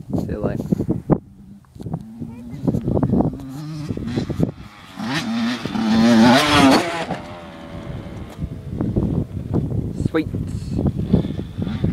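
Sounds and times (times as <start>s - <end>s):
motorbike engine revving: 1.4s - 9.6s, 10.9s - 11.9s.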